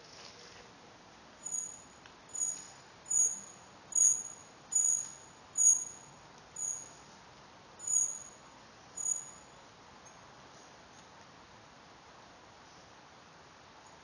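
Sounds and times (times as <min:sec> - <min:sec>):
small bird high-pitched call: 0:01.4 - 0:07.0, 0:07.8 - 0:08.3, 0:09.0 - 0:09.4.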